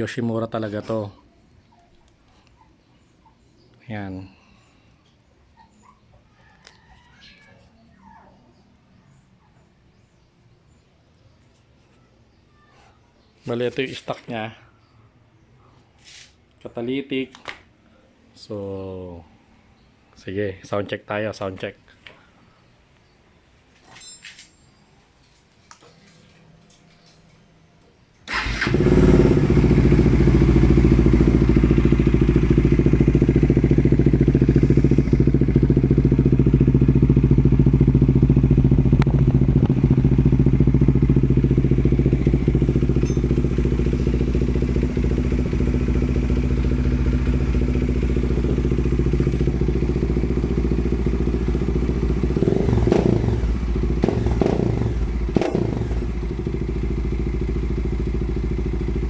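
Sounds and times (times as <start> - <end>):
motorcycle engine starting and idling: 28.2 - 59.0.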